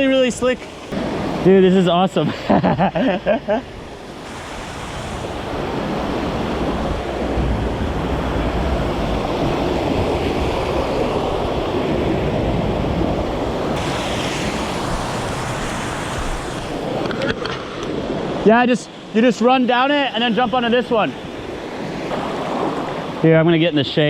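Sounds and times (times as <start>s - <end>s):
water roaring over rocks: 3.9s - 18.4s.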